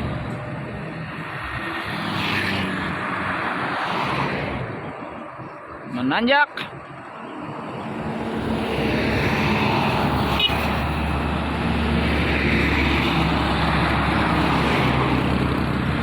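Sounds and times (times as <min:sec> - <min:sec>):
truck diesel engine labouring: 0:09.2 - 0:16.0.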